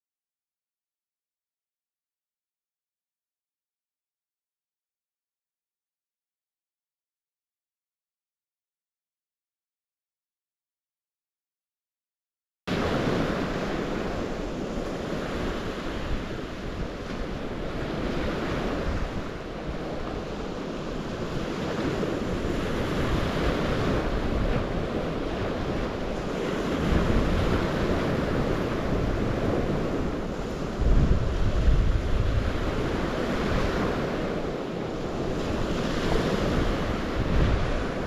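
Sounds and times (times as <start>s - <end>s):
wind buffeting microphone: 12.7s - 38.0s.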